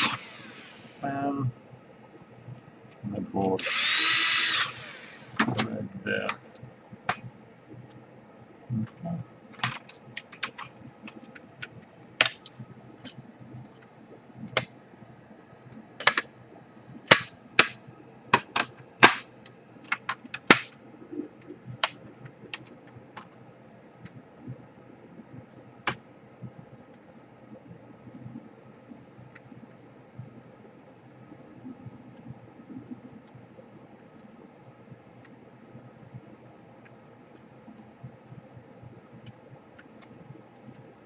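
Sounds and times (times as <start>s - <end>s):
small laptop parts handled: 8.9s - 13.8s.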